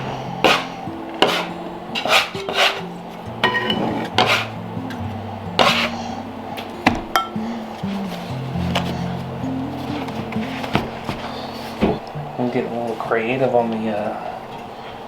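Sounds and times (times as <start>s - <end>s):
soft background music: 0.0s - 15.0s
dishes and utensils clinking: 0.4s - 6.0s, 6.6s - 12.0s
scraping and rubbing: 1.2s - 4.6s, 5.6s - 6.0s, 7.8s - 12.0s.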